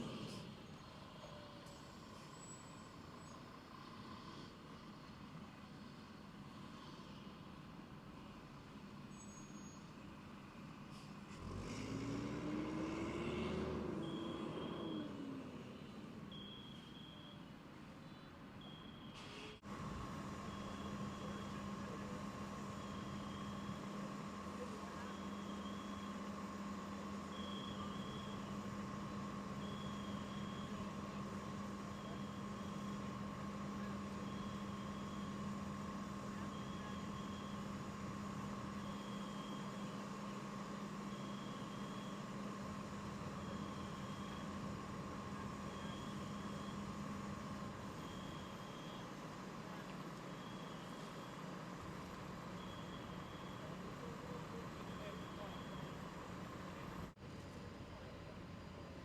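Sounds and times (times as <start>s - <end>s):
vehicle engine passing: 11.3s - 15.8s.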